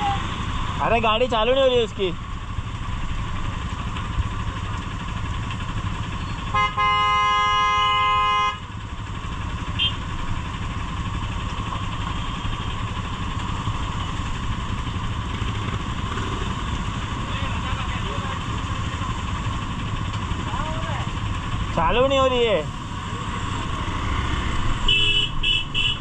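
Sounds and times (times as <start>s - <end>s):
motorcycle engine idling: 0.0s - 26.0s
vehicle horn honking: 6.5s - 8.6s, 9.7s - 10.1s, 24.8s - 26.0s.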